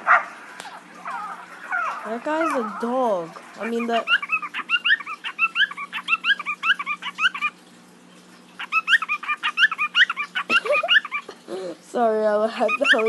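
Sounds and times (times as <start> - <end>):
bird making yip-like calls: 3.6 - 7.6, 8.6 - 11.3, 12.7 - 13.0.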